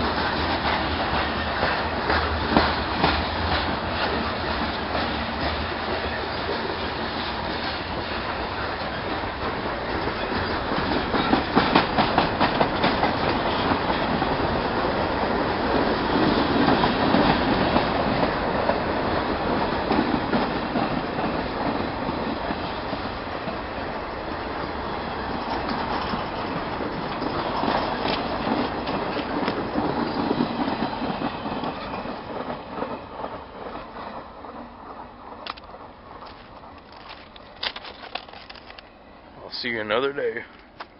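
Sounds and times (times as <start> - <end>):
clickety-clack over rail joints: 0.0 - 39.0, 39.9 - 40.9
freight train wheels on rail: 0.0 - 40.9.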